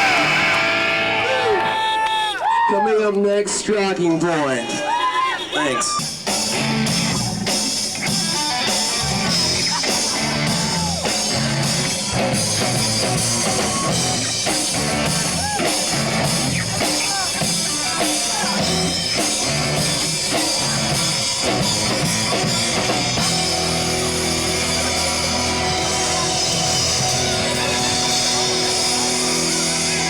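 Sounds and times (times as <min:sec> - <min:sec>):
live rock band playing: 0:00.0 - 0:01.8, 0:04.9 - 0:30.0.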